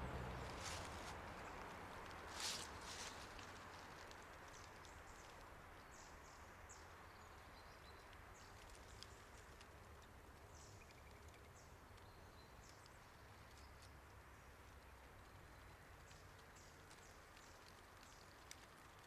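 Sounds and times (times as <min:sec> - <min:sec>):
low outdoor rumble: 0:00.0 - 0:04.6
footsteps crunching on leaves: 0:00.2 - 0:01.5, 0:02.2 - 0:04.0.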